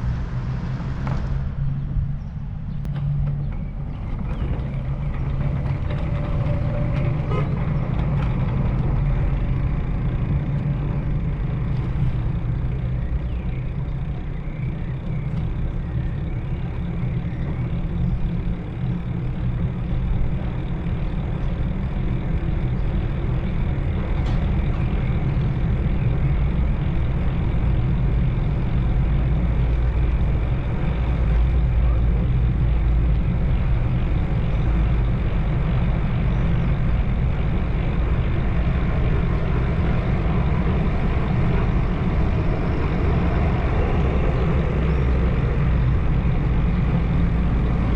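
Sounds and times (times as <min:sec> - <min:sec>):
vehicle engine and road noise: 0:00.0 - 0:47.9.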